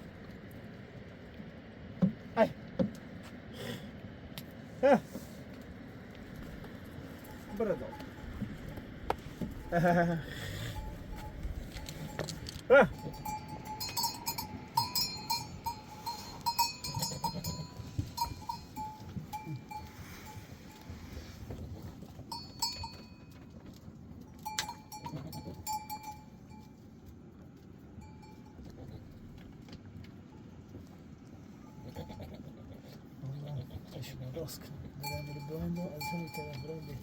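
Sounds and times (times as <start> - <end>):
animal bells clanking: 6.8 - 27.0, 27.8 - 29.2, 34.5 - 37.0.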